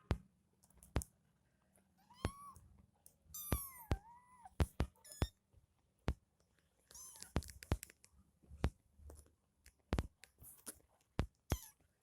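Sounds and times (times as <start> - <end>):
kitten mewing: 2.0 - 2.6, 3.4 - 5.3.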